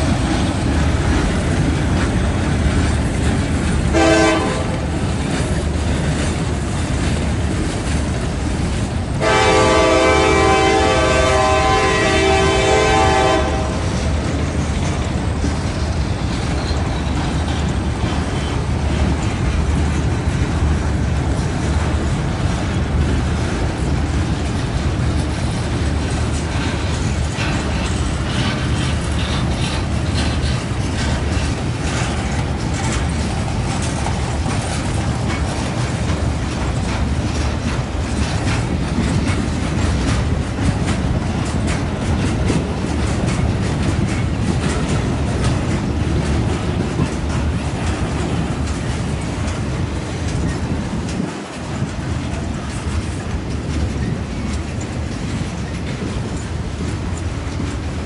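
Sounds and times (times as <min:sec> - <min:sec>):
freight train rumbling: 0:00.0 - 0:58.0
wheels clicking over rail joints: 0:00.0 - 0:58.0
locomotive horn blast: 0:03.9 - 0:04.8, 0:09.2 - 0:13.9.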